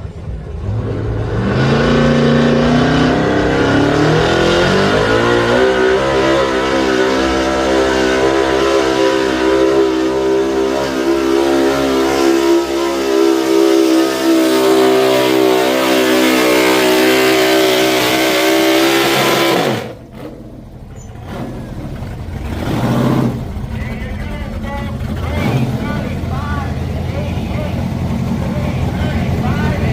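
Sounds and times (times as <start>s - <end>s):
truck engine at high revs: 0.0s - 29.9s.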